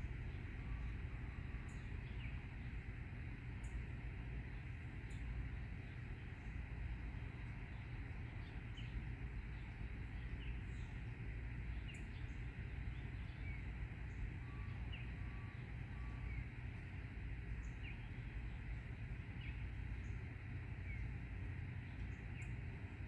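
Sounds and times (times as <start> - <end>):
bird call notes: 7.5 - 22.7.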